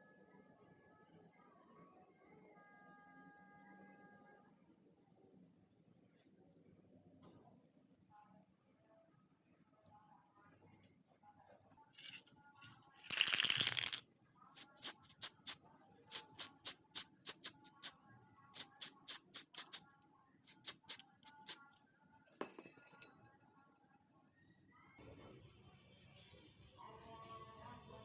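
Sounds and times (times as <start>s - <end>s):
spray hiss: 14.6s - 17.9s, 18.5s - 19.8s, 20.4s - 21.6s.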